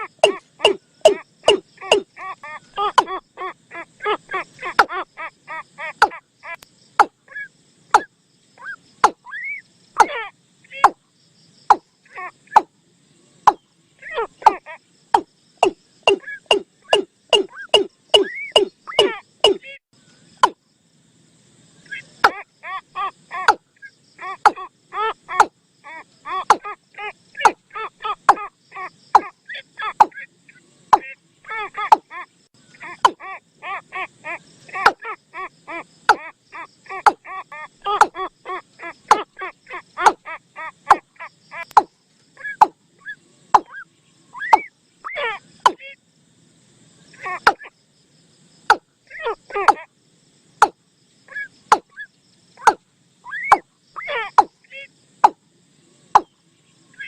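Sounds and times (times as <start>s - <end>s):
bird call with swooping notes: 0.0s - 5.0s, 5.8s - 11.0s, 13.5s - 19.8s, 40.8s - 46.0s, 50.6s - 55.4s.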